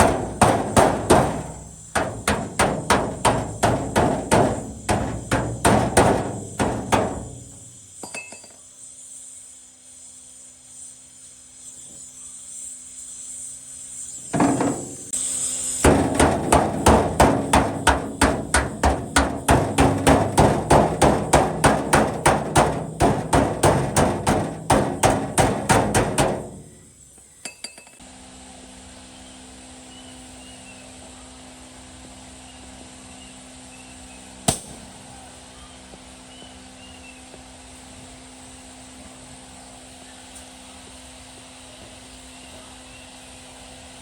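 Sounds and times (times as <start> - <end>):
rapid hammer blows: 0.0 - 8.0, 14.3 - 15.2, 15.8 - 27.1.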